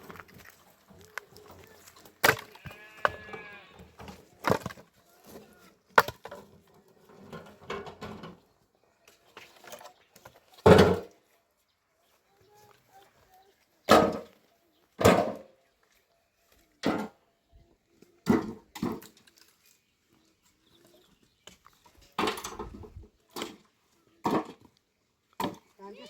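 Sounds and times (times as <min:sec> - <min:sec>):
goat bleating: 0:02.4 - 0:04.0.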